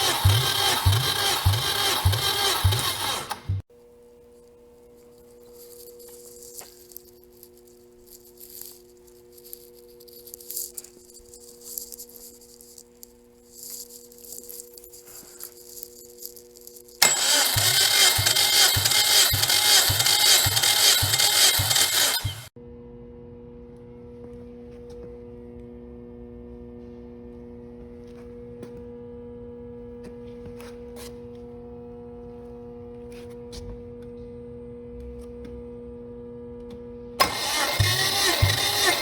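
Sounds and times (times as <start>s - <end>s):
engine cranking by starter motor: 0.0s - 3.7s, 16.9s - 22.6s, 37.2s - 39.0s.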